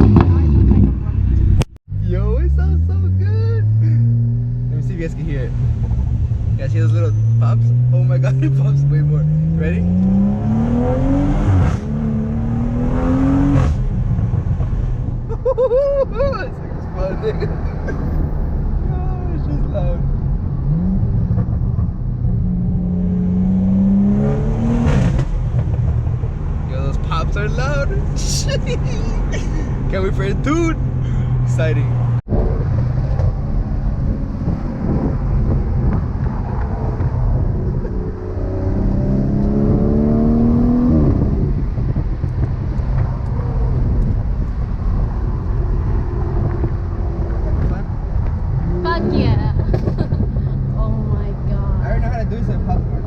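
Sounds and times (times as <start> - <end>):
car engine revving: 0.0 - 15.4, 16.2 - 53.0
exhaust pops and crackles: 20.2 - 22.4, 24.8 - 29.2, 32.3 - 38.1, 41.0 - 51.4.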